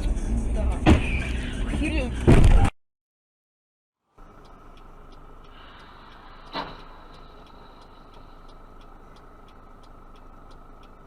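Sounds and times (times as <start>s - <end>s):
car driving noise: 0.0s - 2.7s, 4.1s - 11.0s
faint regular ticking: 4.1s - 11.0s.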